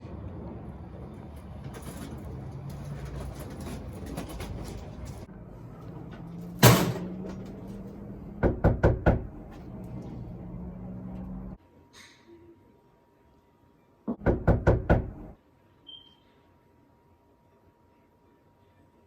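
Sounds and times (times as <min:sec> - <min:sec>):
loud bang on door: 0:06.6 - 0:07.2, 0:14.2 - 0:15.2
quick knocks on door: 0:14.1 - 0:15.2.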